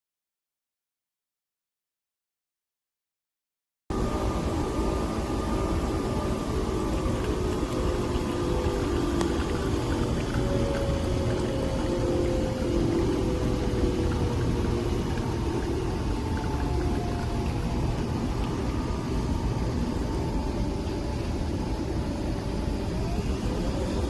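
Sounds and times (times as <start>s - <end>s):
coffee machine motor and pump hum: 3.9s - 24.0s
faint whine: 3.9s - 24.0s.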